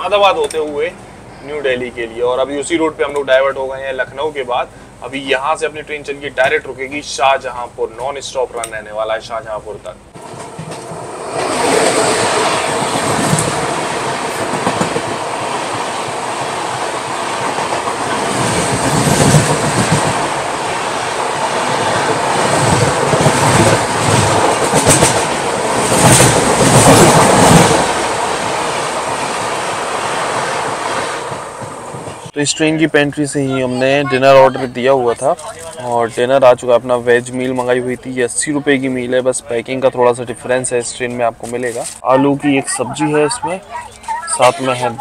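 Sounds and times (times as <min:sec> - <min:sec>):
train wheels rushing on track: 0:10.1 - 0:32.4
wheels clacking over rail joints: 0:10.1 - 0:32.4.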